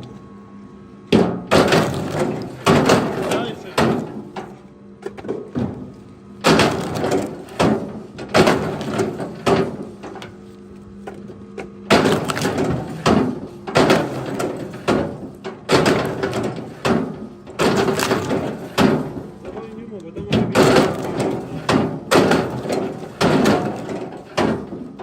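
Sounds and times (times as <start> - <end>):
steady low hum: 0.0 - 25.0
logs knocking and clattering: 11.9 - 24.8.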